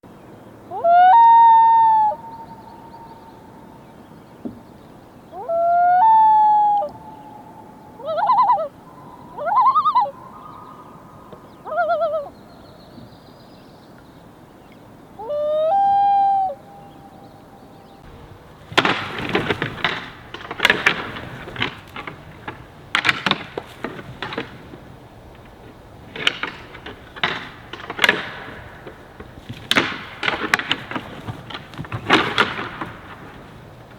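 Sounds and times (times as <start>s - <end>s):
loon wailing calls: 0.6s - 13.7s, 14.6s - 31.4s
sharp knocks and clatters: 18.0s - 33.9s.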